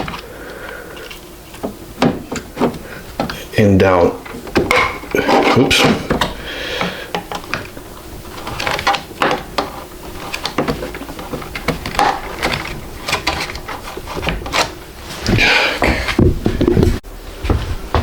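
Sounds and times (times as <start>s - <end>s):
clicks and knocks of handled parts: 0.0s - 3.5s, 4.2s - 15.4s.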